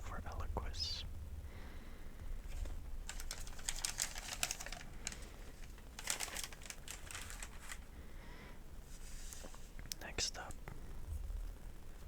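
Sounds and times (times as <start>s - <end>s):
paper crinkling: 2.4s - 7.9s.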